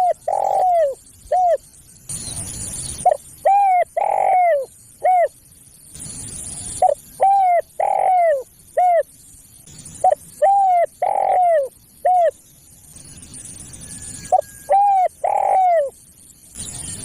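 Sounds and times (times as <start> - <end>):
dove cooing: 0.0 - 1.6, 3.0 - 5.4, 6.8 - 9.1, 10.0 - 12.4, 14.3 - 16.0
faint high hiss: 0.0 - 17.0.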